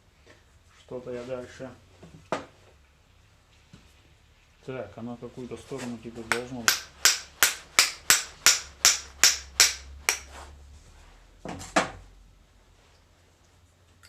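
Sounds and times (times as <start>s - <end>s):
hammer striking metal: 6.3s - 10.3s.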